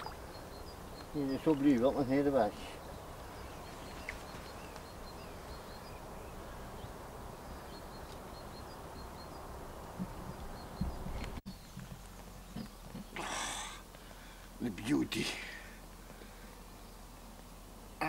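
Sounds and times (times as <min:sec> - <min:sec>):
small bird chirping: 0:00.0 - 0:13.2
background hiss: 0:00.0 - 0:18.0.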